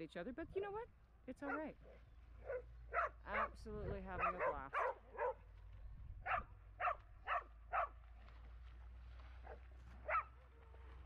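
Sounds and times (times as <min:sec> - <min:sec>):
dog barking: 0:01.4 - 0:05.4, 0:06.2 - 0:08.0, 0:09.4 - 0:10.4.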